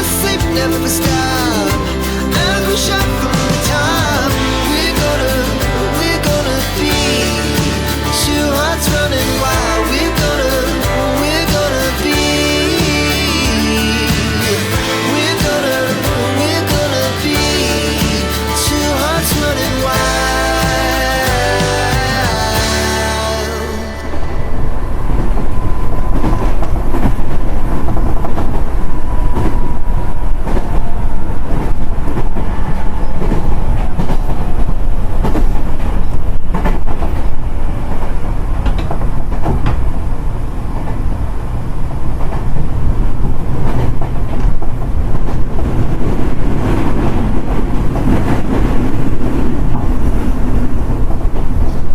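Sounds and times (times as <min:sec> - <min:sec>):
train rumbling along track: 0:23.0 - 0:51.9.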